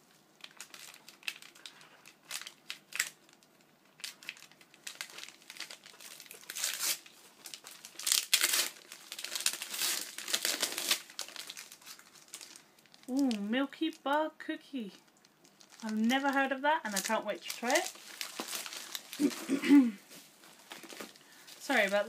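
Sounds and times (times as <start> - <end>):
gift wrapping crinkling: 0.0 - 22.0.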